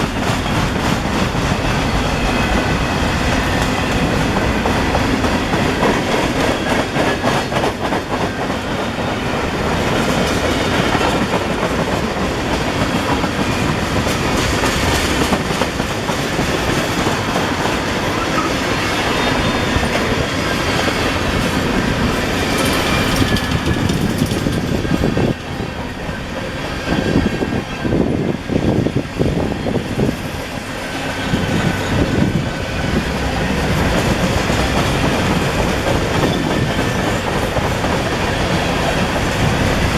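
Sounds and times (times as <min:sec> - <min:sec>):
freight train rolling past: 0:00.0 - 0:39.9
wheels clacking over rail joints: 0:09.7 - 0:27.1.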